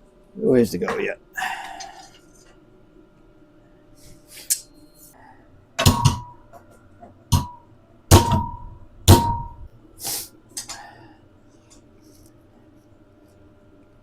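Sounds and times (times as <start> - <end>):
hammer striking metal tube: 5.8 - 6.4, 7.3 - 9.7
short hiss: 10.0 - 10.3.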